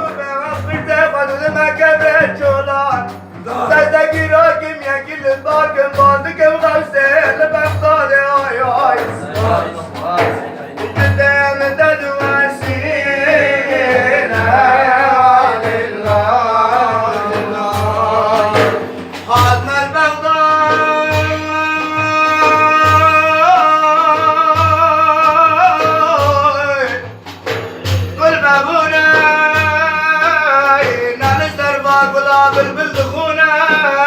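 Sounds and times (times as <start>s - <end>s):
man singing praise song: 0.0s - 27.1s, 27.8s - 34.0s
low drum beat: 0.0s - 34.0s.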